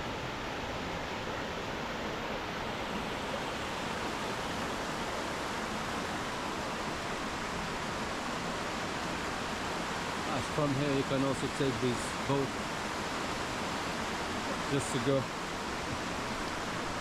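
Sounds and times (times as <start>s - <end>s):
waterfall roaring: 0.0s - 17.0s.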